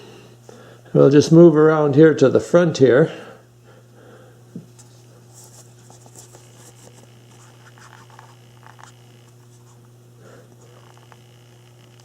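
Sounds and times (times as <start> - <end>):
steady low hum: 0.0 - 12.0
camera handling scratching and rustling: 4.7 - 9.9.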